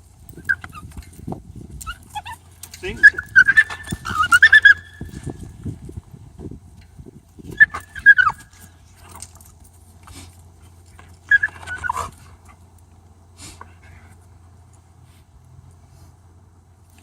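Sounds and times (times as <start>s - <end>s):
dog yelping high-pitched: 1.8s - 5.3s, 7.5s - 8.6s, 11.2s - 12.2s.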